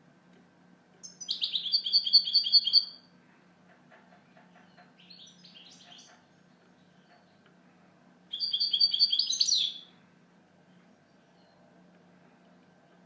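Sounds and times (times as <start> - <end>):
finch twittering song: 1.0 - 3.0, 4.6 - 7.4, 8.3 - 10.0.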